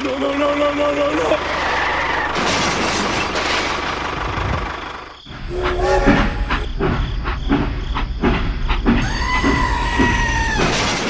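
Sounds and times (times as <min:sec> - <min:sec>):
steam train whistle: 0:05.5 - 0:06.7
train wheels clickety-clack: 0:06.7 - 0:11.0.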